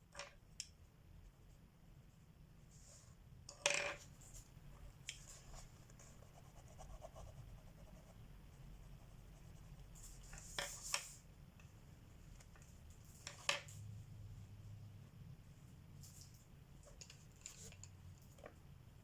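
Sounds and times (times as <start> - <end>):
pencil scratching on paper: 5.3 - 10.9.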